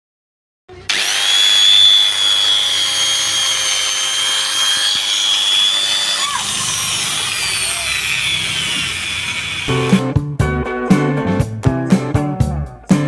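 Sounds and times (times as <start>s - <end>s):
angle grinder whining: 0.7s - 10.0s.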